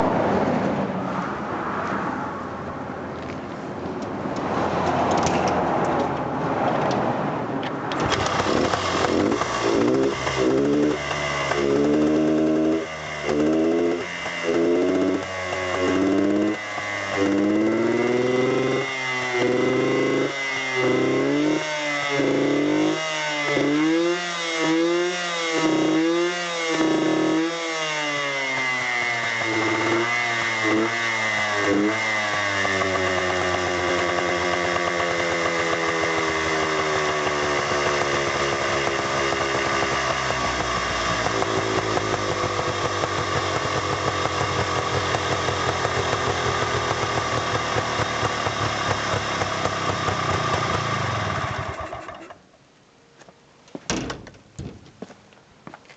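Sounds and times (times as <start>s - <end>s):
two-stroke engine revving and idling: 7.9s - 52.5s.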